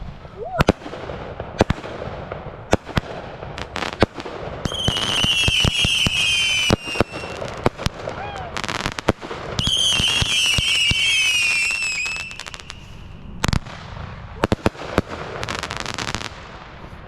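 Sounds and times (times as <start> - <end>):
firework crackling: 0.0 - 17.0
sharp firework cracks: 0.0 - 17.0
firework whistles: 4.7 - 7.5, 9.6 - 13.8.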